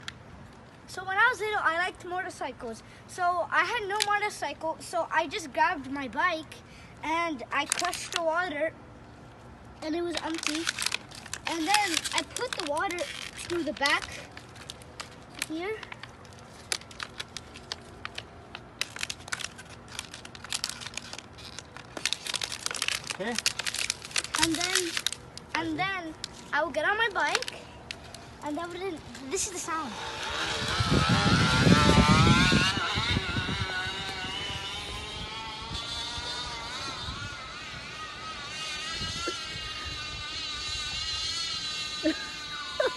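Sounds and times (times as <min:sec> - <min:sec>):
plastic bottle crinkling: 0:07.6 - 0:08.2, 0:10.1 - 0:26.5, 0:27.2 - 0:29.2.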